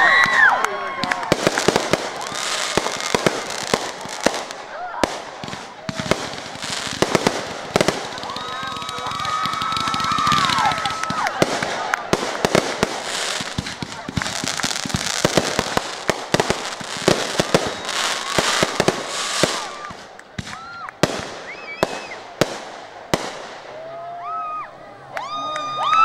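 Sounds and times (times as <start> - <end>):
firework bangs: 0.0 - 23.8
firework crackle: 0.0 - 23.8.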